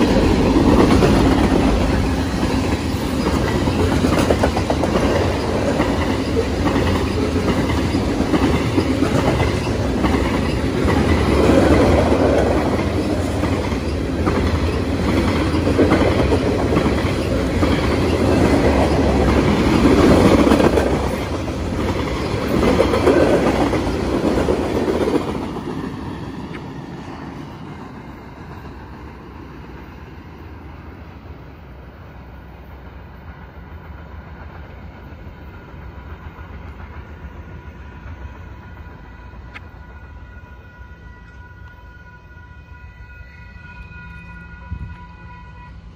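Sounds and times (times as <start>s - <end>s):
freight train wheels clattering: 0.0s - 29.9s.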